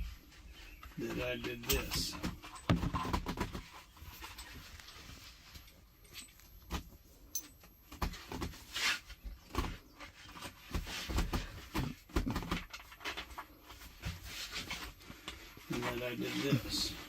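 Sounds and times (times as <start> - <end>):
metal hardware clicking and knocking: 1.6 - 3.2, 7.3 - 7.7.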